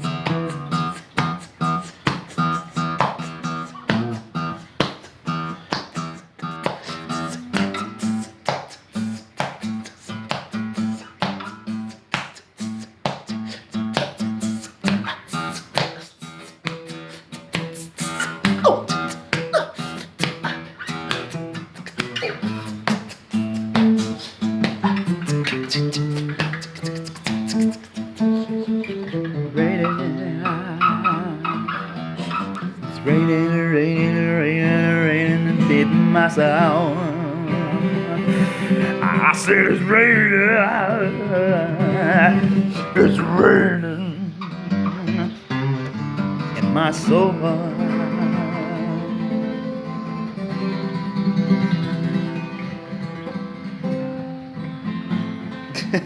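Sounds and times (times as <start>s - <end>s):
acoustic guitar: 0.0s - 56.0s
wordless vocal with vibrato: 29.5s - 45.5s, 46.6s - 49.6s.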